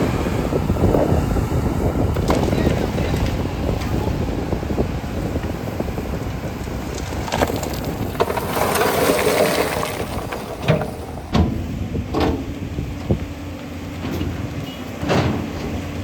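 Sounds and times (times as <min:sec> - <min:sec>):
excavator engine running: 0:00.0 - 0:16.0
bucket scraping stone: 0:06.6 - 0:11.5.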